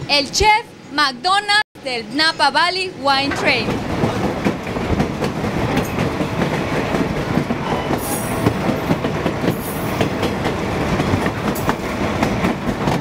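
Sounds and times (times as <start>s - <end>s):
train wheels rumbling and clattering: 2.9s - 13.0s.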